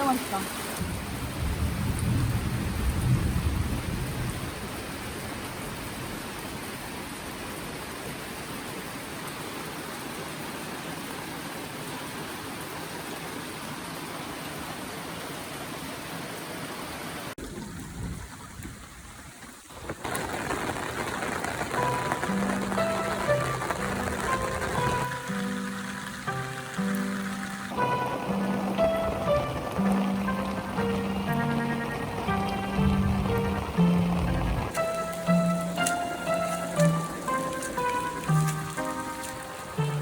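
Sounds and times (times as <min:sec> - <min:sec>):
heavy rain falling: 0:00.0 - 0:40.0
thunder rumble: 0:00.8 - 0:06.3, 0:17.4 - 0:39.2
background music: 0:21.6 - 0:40.0.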